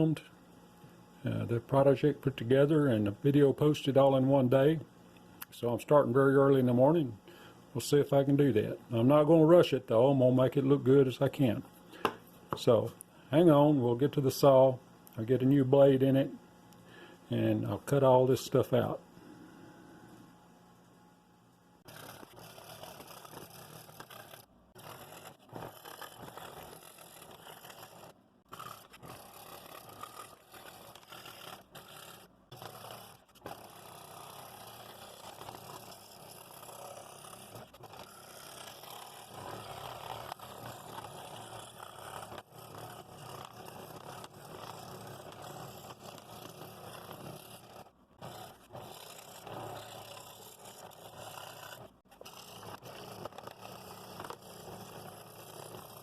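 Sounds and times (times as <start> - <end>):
scroll saw cutting thin wood: 21.8 - 56.0.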